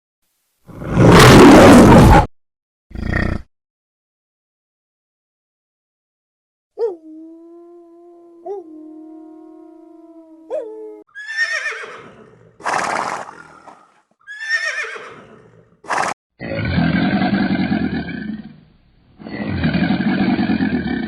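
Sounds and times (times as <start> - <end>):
horse whinnying: 11.1 - 16.9.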